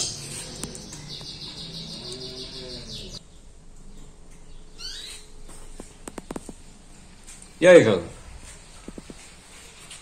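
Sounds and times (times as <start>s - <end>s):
small bird chirping: 0.0s - 6.5s.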